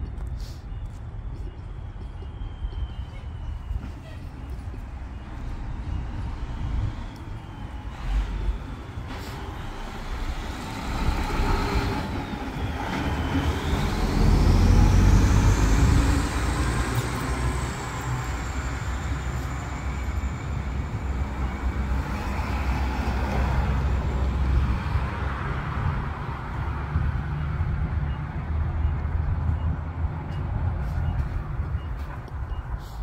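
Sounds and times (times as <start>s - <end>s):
truck engine rumble: 0.0s - 33.0s.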